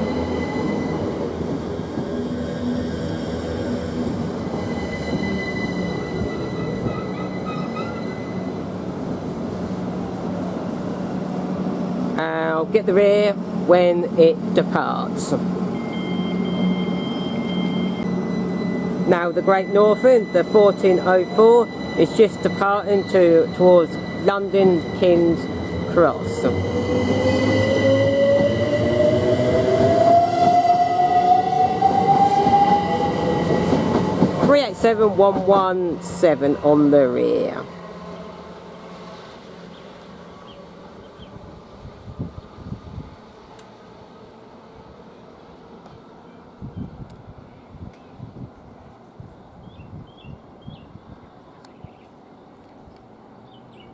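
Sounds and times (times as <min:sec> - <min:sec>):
electric train humming: 0:00.0 - 0:46.5
thin high tone: 0:15.7 - 0:25.2
train wheels rumbling on rails: 0:19.7 - 0:38.2.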